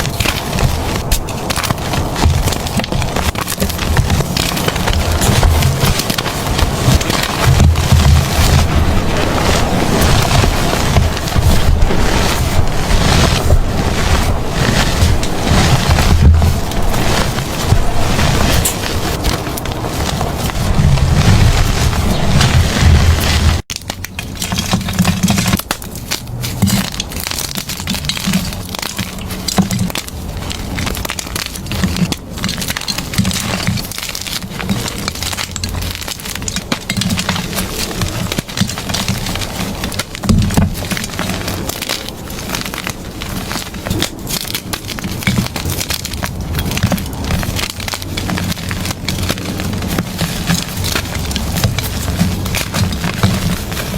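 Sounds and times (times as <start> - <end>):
chalk crunching and crackling: 0.0 - 53.9
soft low thumps: 0.7 - 23.6.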